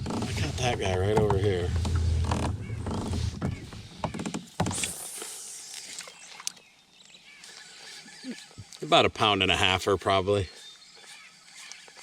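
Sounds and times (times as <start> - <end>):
knocks and clicks on kayak: 0.0 - 4.9
brief hiss: 4.7 - 6.1.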